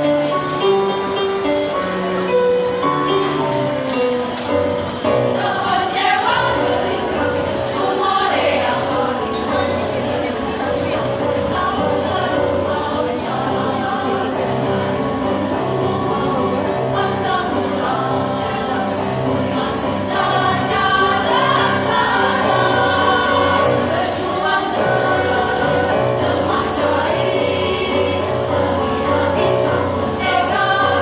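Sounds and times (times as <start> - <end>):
choir singing in harmony: 0.0 - 31.0.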